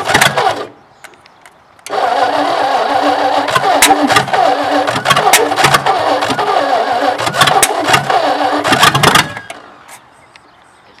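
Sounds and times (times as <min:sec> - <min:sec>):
engine cranking and sputtering: 0:00.0 - 0:00.8, 0:01.8 - 0:09.7
engine pops: 0:00.0 - 0:09.7.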